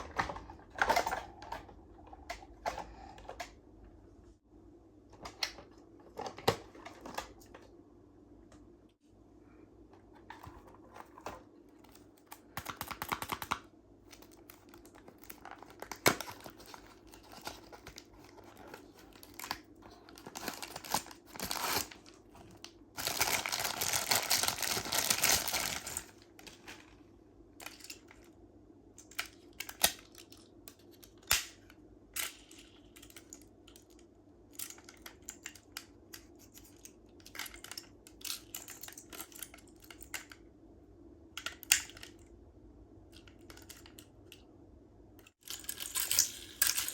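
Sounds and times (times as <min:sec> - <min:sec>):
packaging clicks and taps: 0:10.3 - 0:21.8
packaging tearing and rustling: 0:14.2 - 0:26.8.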